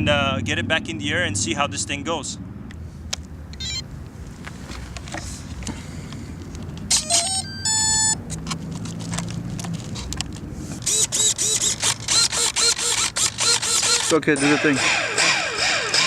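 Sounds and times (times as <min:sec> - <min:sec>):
handling clicks and rustling: 0:04.0 - 0:14.3
rising electronic tones and beep: 0:06.9 - 0:08.2.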